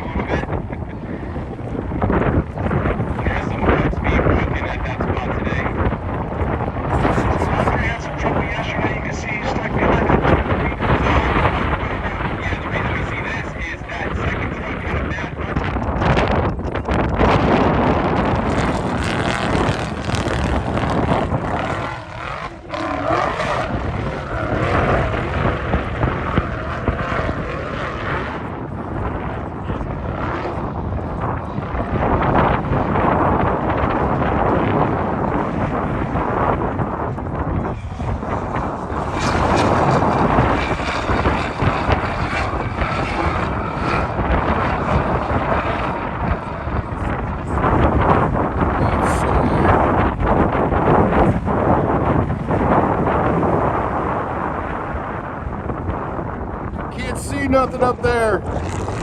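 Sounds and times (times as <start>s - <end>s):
race vehicle engine revving: 0.0s - 31.0s
wind buffeting microphone: 0.0s - 59.0s.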